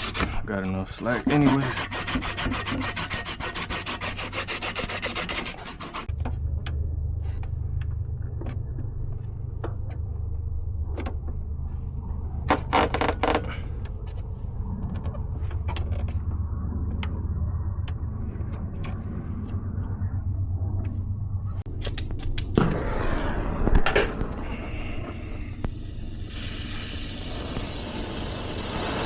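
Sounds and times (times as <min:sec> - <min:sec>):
steady low hum: 0:00.0 - 0:29.0
hand tool rasping on copper pipe: 0:01.0 - 0:06.1.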